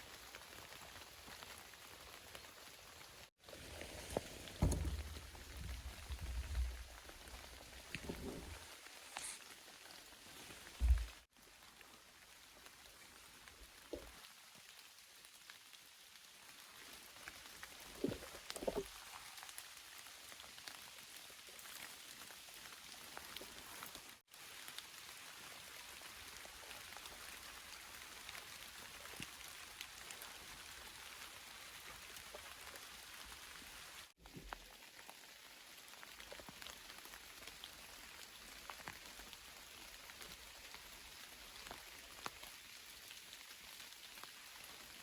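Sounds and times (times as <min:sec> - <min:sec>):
rain patter: 0:00.0 - 0:45.0
soft thumps: 0:03.8 - 0:08.6.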